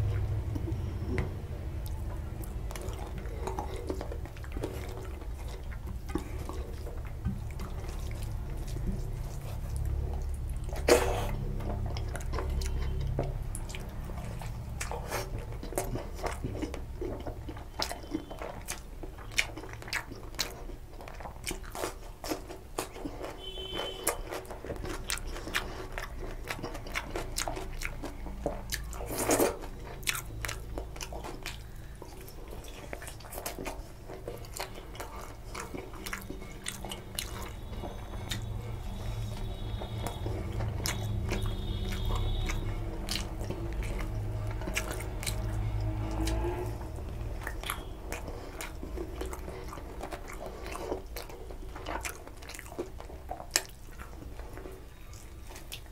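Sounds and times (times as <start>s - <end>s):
chewing and lip-smacking: 0.0s - 55.9s
loud wet mouth sounds: 31.4s - 54.1s.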